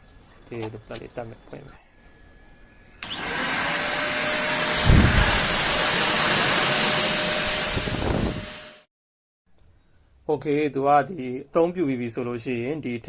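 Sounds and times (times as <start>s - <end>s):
handheld vacuum cleaner whine: 2.4s - 8.9s
rush of air: 4.8s - 8.6s.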